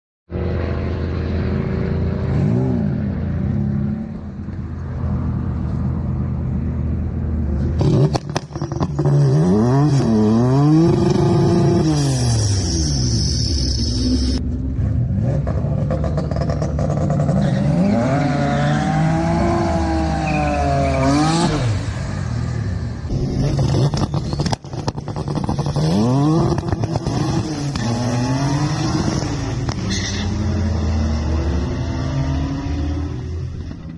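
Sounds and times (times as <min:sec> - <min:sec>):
car engine revving hard: 0:25.1 - 0:29.8.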